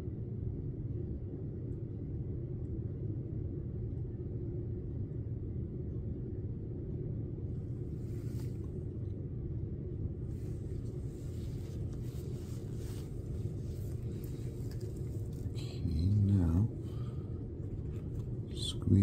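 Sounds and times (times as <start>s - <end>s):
low background rumble: 0.0s - 19.0s
faint handling noises: 7.6s - 8.9s, 10.3s - 19.0s.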